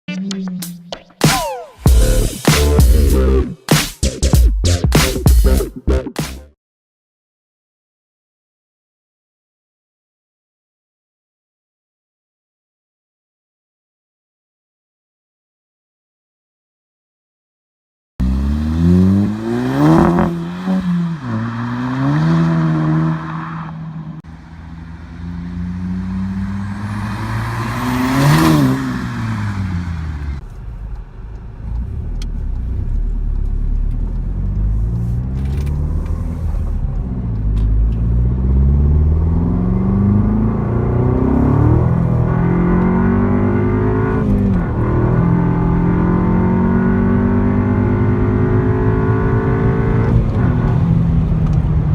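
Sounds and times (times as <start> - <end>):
car engine accelerating and shifting: 18.2 - 51.9
car engine revving: 18.2 - 51.9.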